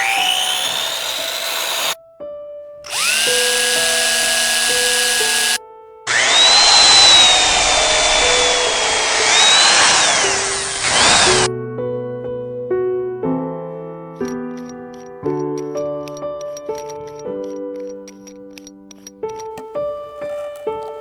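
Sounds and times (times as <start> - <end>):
power drill cutting wood: 0.0 - 2.0, 2.9 - 11.5.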